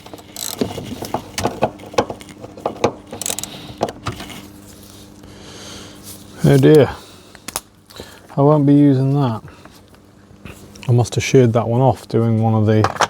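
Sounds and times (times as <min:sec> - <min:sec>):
small metal parts clinking: 0:00.0 - 0:01.0, 0:03.1 - 0:03.6
faint steady hum: 0:00.0 - 0:13.0.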